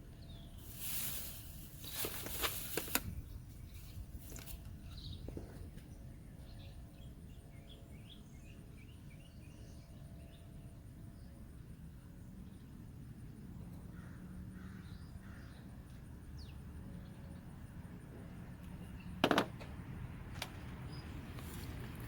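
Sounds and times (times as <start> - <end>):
rustling: 0.6 - 4.7.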